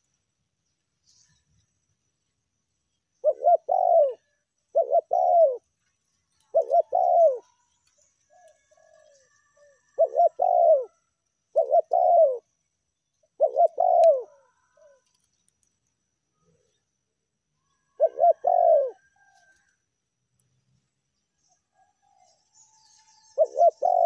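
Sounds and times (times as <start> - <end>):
dove cooing: 3.2 - 5.7, 6.4 - 7.6, 8.3 - 12.5, 13.3 - 15.1, 17.9 - 19.6, 23.2 - 24.0.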